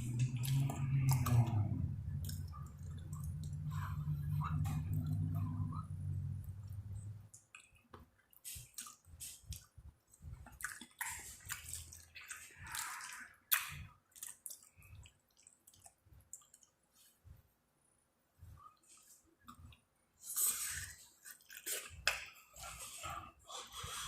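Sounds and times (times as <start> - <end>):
wet chewing and lip smacking: 0.0 - 5.8, 6.6 - 16.8.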